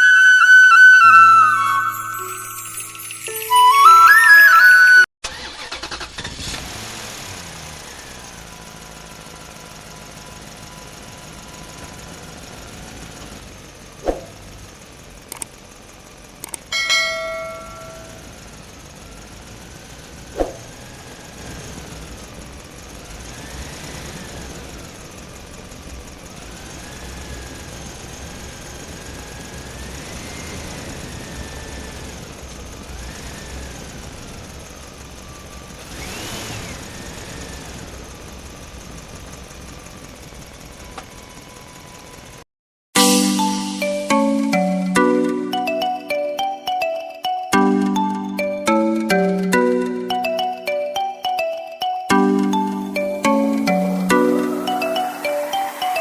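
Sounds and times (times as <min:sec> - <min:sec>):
short chime: 0:01.0 - 0:05.1, 0:16.7 - 0:18.3, 0:43.0 - 0:56.0
toy electric motor whining: 0:35.8 - 0:37.8.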